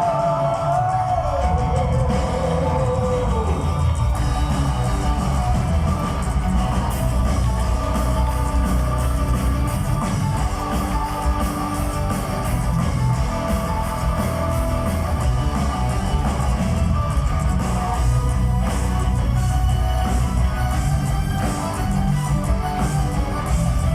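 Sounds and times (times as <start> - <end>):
bass guitar: 0.0 - 23.9
drums: 0.0 - 23.9
electric guitars: 0.0 - 23.9.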